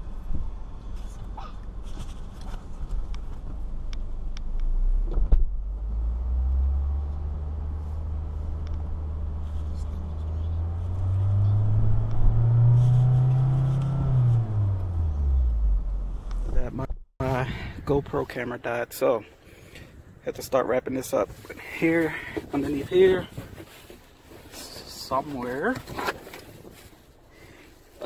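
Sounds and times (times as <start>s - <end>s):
car engine revving: 4.4s - 16.7s.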